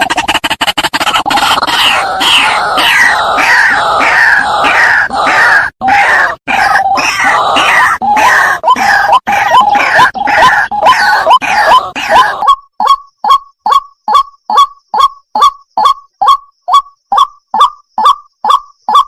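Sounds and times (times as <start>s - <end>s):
waterhen harsh calls: 0.0s - 12.5s.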